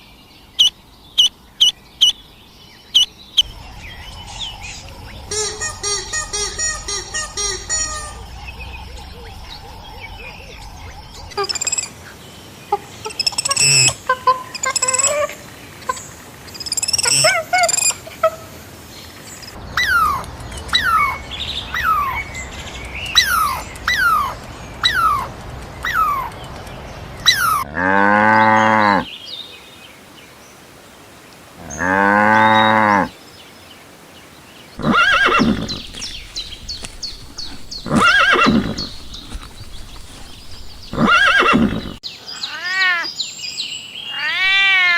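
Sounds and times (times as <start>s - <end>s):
bird chirps: 0.0s - 12.4s, 34.8s - 42.5s
cow mooing: 27.7s - 29.0s, 34.8s - 42.0s
short animal calls: 34.8s - 42.0s.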